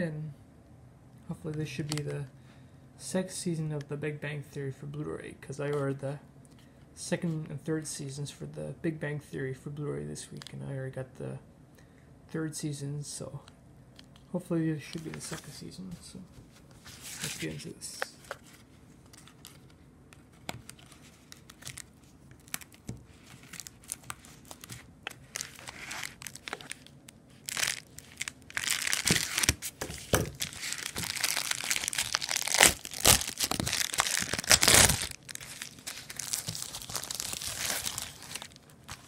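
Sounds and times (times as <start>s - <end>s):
packaging crinkling and tearing: 20.4s - 39.0s.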